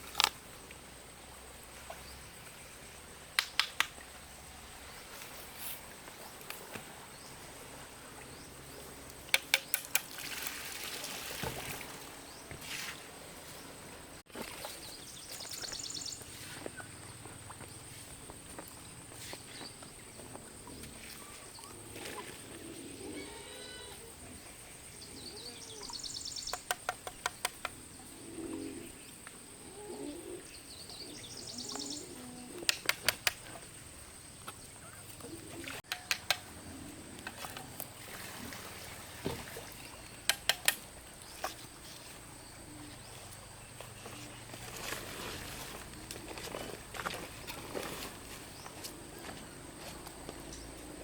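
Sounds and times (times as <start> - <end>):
birds chirping: 14.6 - 38.2.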